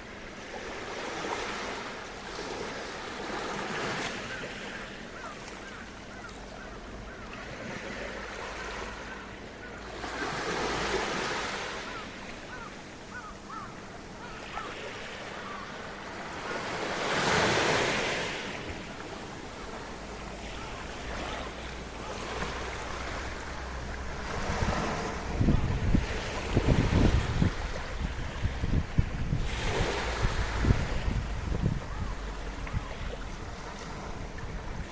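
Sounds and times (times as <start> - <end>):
small waves washing ashore: 0.0 - 34.9
wind buffeting microphone: 23.2 - 34.9.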